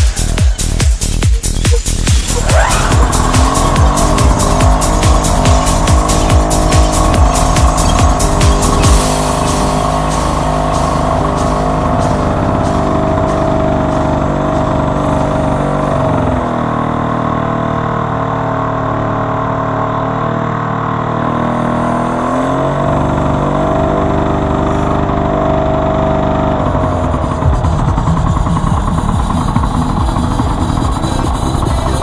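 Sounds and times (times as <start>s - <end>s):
small two-stroke engine running: 0.0s - 20.0s, 22.7s - 32.0s.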